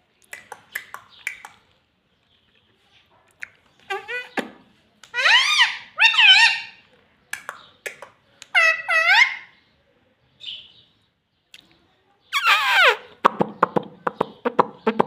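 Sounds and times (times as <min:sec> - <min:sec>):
parrot talking: 0:03.9 - 0:04.5, 0:05.1 - 0:06.8, 0:08.4 - 0:09.6, 0:12.3 - 0:13.2.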